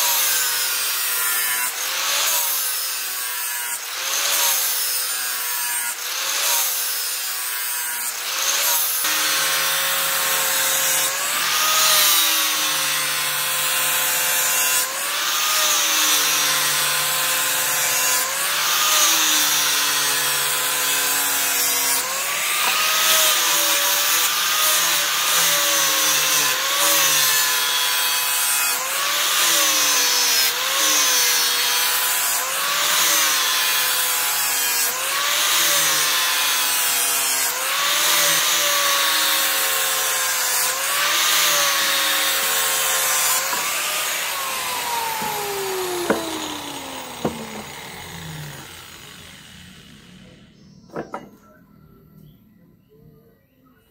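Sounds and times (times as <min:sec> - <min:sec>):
metal grinding strokes: 0:39.4 - 0:50.4.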